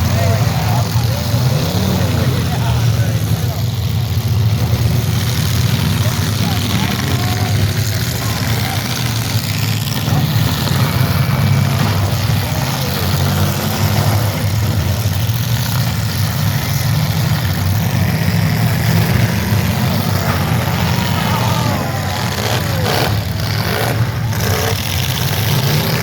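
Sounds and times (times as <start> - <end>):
deep engine drone: 0.0 - 26.0.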